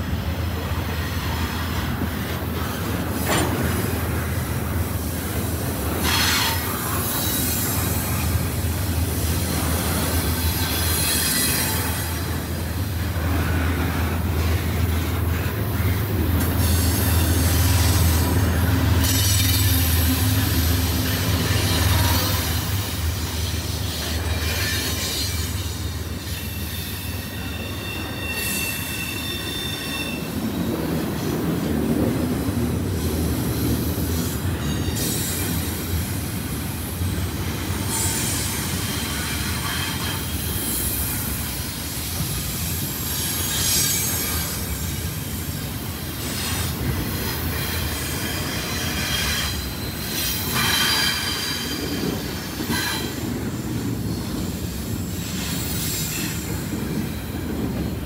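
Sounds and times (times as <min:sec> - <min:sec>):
freight train rumble: 0:00.0 - 0:58.0
wheels squealing: 0:16.6 - 0:30.4.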